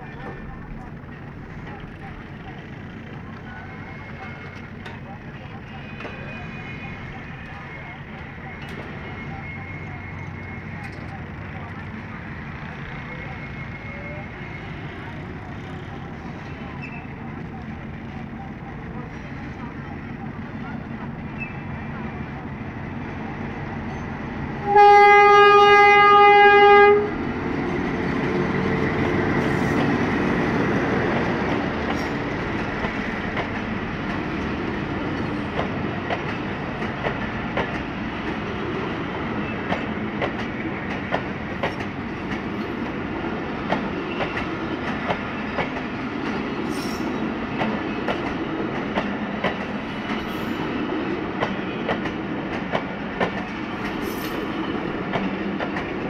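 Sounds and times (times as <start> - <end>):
locomotive engine rumbling: 0.0 - 56.0
train horn blast: 24.6 - 27.2.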